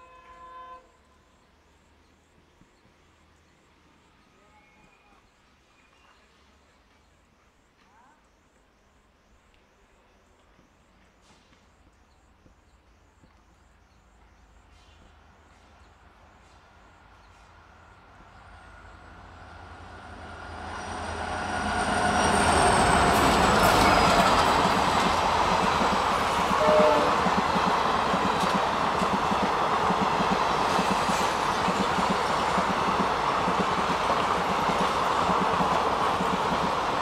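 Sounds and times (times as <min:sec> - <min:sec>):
train passing at speed: 0:14.1 - 0:37.0
clickety-clack of train wheels: 0:21.7 - 0:37.0.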